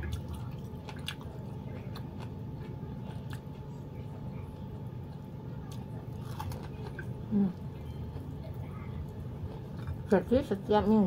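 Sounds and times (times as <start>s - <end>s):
person chewing food: 0.0s - 3.7s, 5.0s - 10.1s
steady low hum: 0.0s - 11.0s.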